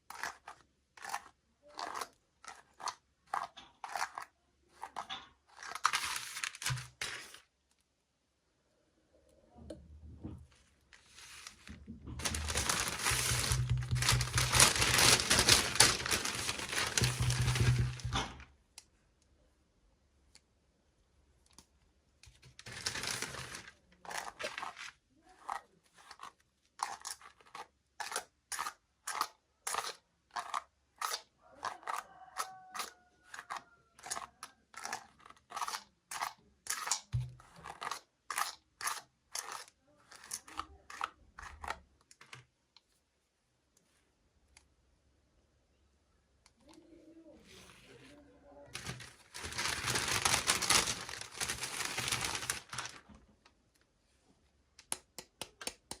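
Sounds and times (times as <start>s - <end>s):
plastic packaging crinkling and tearing: 4.9s - 7.5s, 11.0s - 18.4s, 22.3s - 25.6s, 48.7s - 53.2s.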